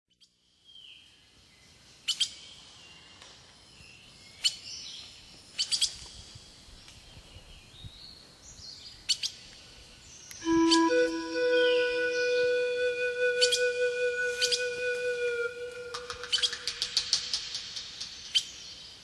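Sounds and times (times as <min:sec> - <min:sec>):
birds chirping: 0:04.2 - 0:19.0
faint whistled bird notes: 0:10.1 - 0:18.8.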